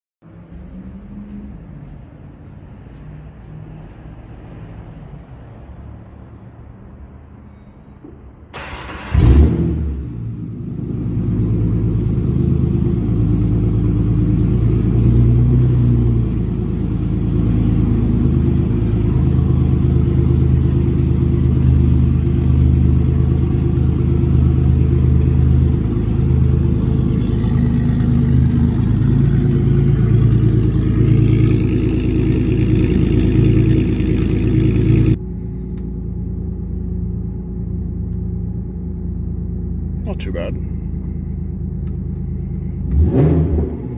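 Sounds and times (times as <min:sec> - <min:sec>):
engine cranking: 0:08.6 - 0:09.4
car engine idling loudly: 0:16.0 - 0:43.0.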